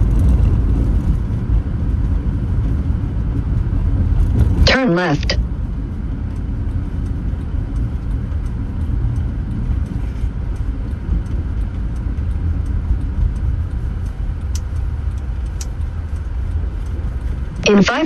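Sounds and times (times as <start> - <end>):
tyre and engine rumble: 0.0 - 18.0
faint ticking: 4.0 - 18.0
sharp clicks: 10.9 - 18.0.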